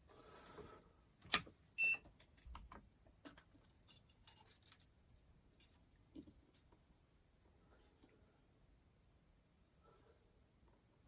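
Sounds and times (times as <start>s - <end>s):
hands handling wires and parts: 1.2s - 6.8s.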